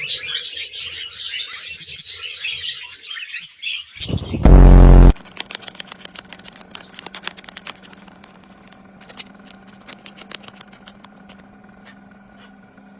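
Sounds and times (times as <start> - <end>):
low steady hum: 4.0 - 5.2
small clicks and taps: 5.3 - 11.5.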